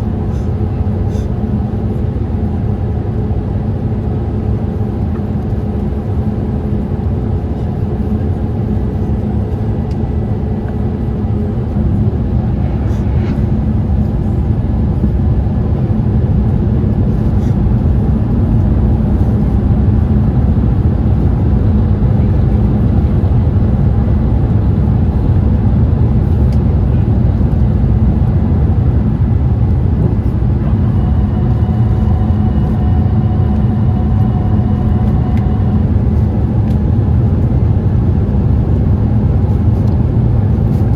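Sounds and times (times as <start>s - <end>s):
airplane cabin engine rumble: 0.0s - 40.9s
faint whine tones: 7.1s - 37.4s.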